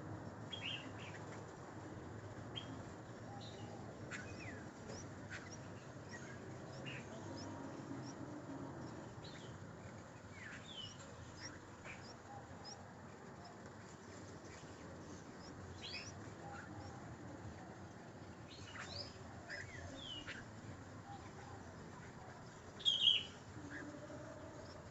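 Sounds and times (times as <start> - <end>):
steady background hiss: 0.0 - 24.9
small birds chirping and whistling: 2.6 - 8.2, 10.3 - 13.6, 14.2 - 17.0, 18.5 - 22.1, 22.7 - 24.9.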